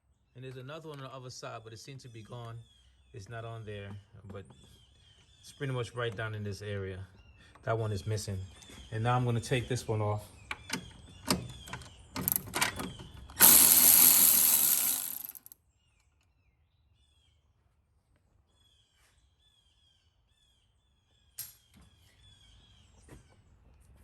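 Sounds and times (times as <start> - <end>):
ratchet clicking: 12.2 - 12.5, 13.4 - 15.6.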